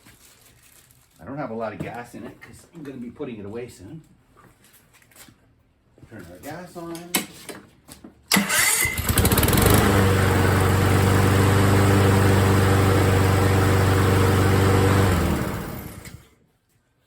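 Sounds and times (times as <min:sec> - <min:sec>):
lawn mower engine running: 0:08.3 - 0:16.2.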